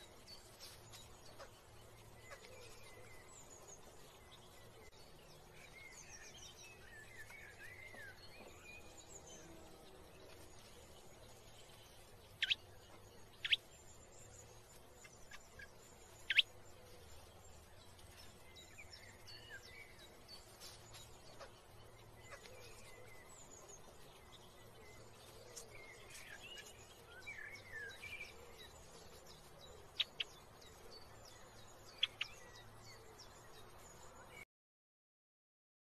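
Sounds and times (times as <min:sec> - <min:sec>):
birds chirping: 0:00.0 - 0:34.4
soft bird twittering: 0:10.2 - 0:34.4.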